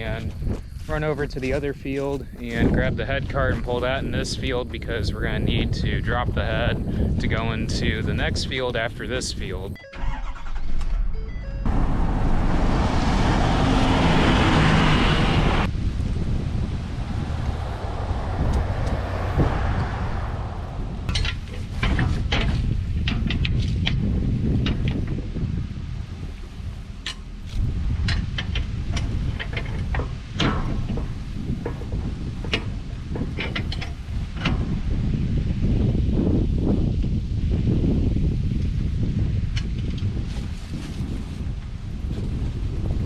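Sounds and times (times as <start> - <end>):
wind buffeting microphone: 0.0 - 9.8, 11.6 - 43.0
vehicle engine rumbling: 0.0 - 37.7
sharp clicks and knocks: 27.0 - 34.7.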